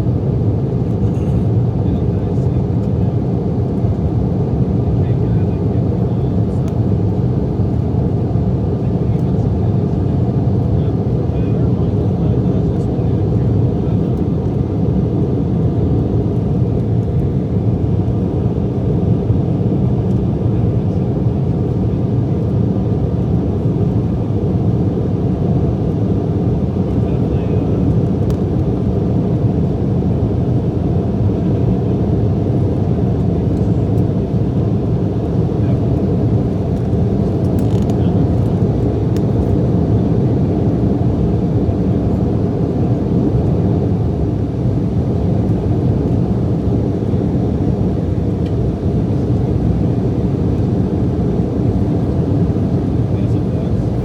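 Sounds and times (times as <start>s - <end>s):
jet engines rumbling: 1.6s - 54.0s
air rushing in cabin: 41.9s - 54.0s.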